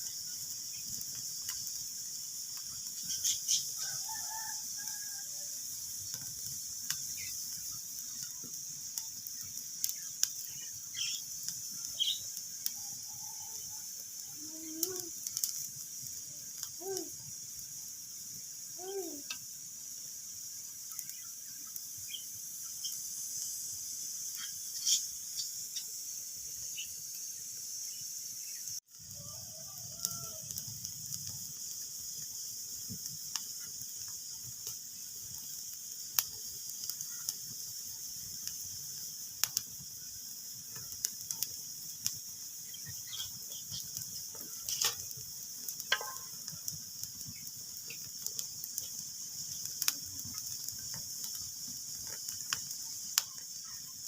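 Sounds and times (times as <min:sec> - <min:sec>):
wood fire crackling and popping: 0:00.0 - 0:26.9, 0:28.8 - 0:54.0
rising-and-falling calls: 0:03.1 - 0:05.5.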